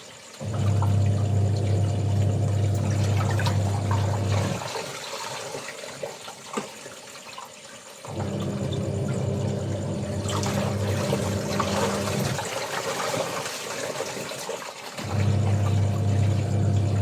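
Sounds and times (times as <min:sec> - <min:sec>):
water rushing: 0:00.0 - 0:05.4, 0:08.1 - 0:17.0
water trickling and splashing: 0:00.0 - 0:17.0
motor humming: 0:00.4 - 0:04.6, 0:08.1 - 0:12.5, 0:15.0 - 0:17.0.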